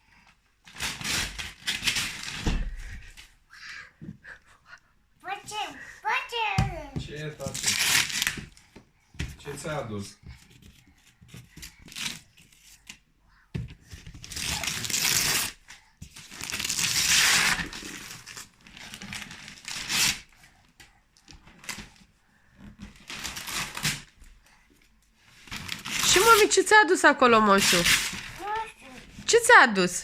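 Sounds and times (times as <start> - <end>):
wrapping paper tearing and crumpling: 0.7 - 2.6, 7.4 - 8.5, 14.2 - 15.6, 16.2 - 20.4, 23.0 - 24.1, 25.3 - 26.6, 27.5 - 29.3.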